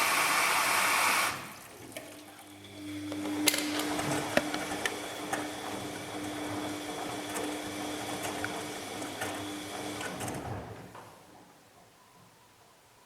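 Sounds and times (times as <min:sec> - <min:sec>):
washing machine drum turning: 0:02.6 - 0:11.3.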